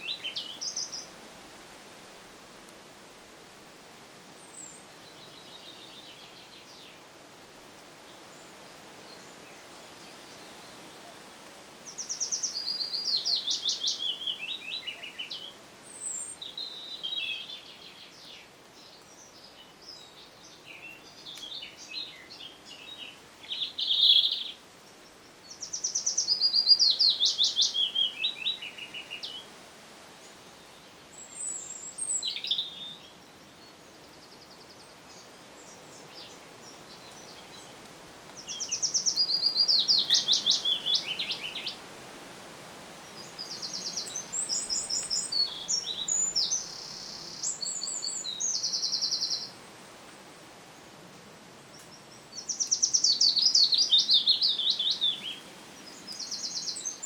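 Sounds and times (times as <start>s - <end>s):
songbird singing: 0.0s - 1.2s, 4.4s - 7.1s, 7.7s - 29.6s, 30.2s - 50.5s, 51.6s - 57.0s
steady background hiss: 0.0s - 57.0s.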